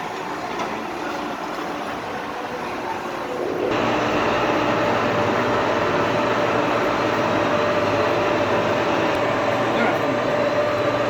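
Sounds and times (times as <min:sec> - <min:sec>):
workshop machinery running: 0:00.0 - 0:11.0
machine humming: 0:03.2 - 0:11.0.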